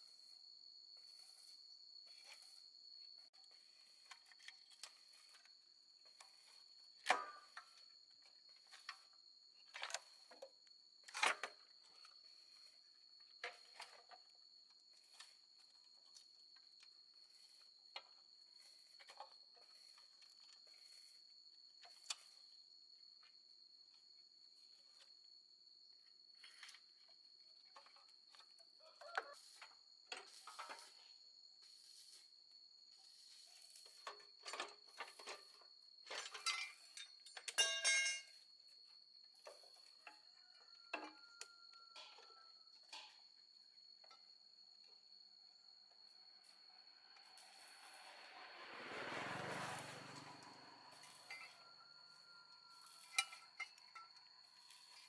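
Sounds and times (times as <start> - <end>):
metal tools clinking: 36.1 - 38.4, 52.8 - 54.0.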